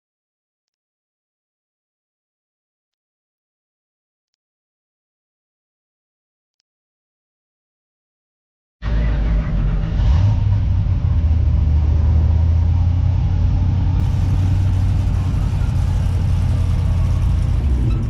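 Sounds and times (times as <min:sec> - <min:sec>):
car engine rumbling: 0:08.9 - 0:18.0.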